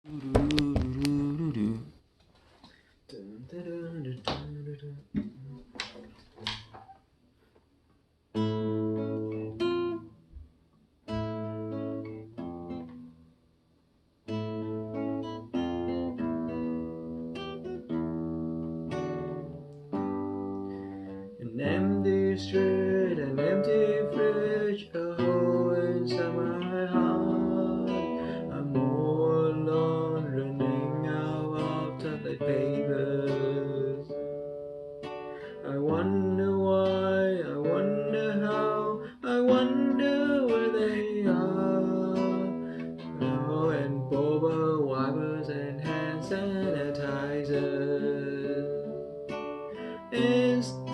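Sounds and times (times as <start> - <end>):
acoustic guitar strumming: 0.0 - 2.0, 8.3 - 13.3, 14.2 - 50.9
man singing: 0.0 - 2.0, 3.1 - 5.7, 21.3 - 34.4, 35.4 - 49.1, 49.8 - 50.9.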